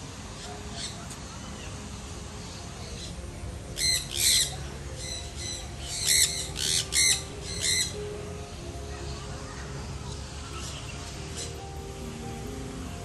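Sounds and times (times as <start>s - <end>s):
birds squawking: 3.8s - 8.0s.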